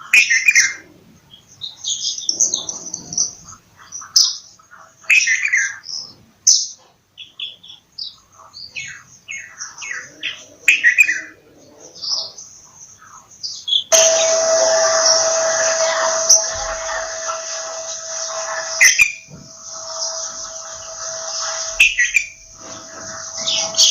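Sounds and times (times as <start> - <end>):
constant hum: 13.9 - 23.9
loud steady hiss: 13.9 - 23.9
bird chirping and whistling: 15.9 - 23.9.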